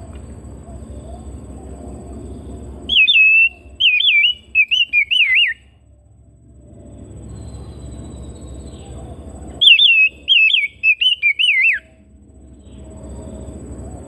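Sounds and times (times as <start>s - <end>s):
low background rumble: 0.0s - 14.0s
bird singing whistled notes: 2.2s - 5.8s, 7.3s - 13.5s.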